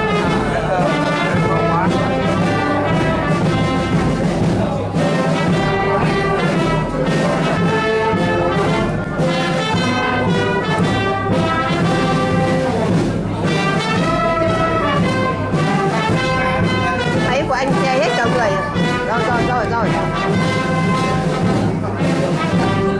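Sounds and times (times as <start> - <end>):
brass music with trumpets and trombones: 0.0 - 22.9.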